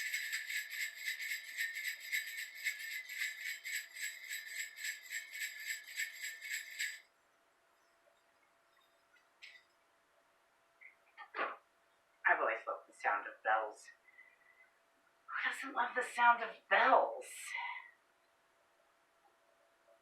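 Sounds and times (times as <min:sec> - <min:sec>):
jingle bells shaken: 0:00.0 - 0:07.1.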